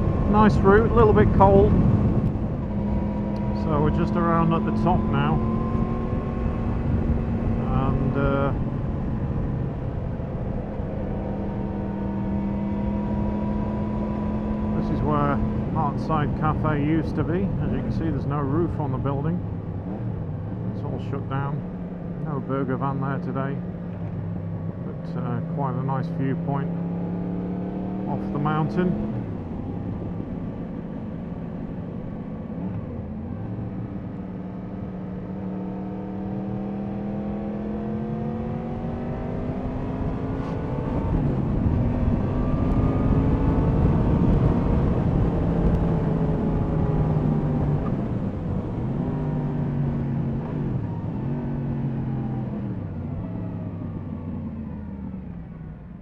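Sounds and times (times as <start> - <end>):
wind noise: 0.0 - 3.5, 37.2 - 51.7
motorcycle engine revving: 0.0 - 16.1, 32.8 - 55.1.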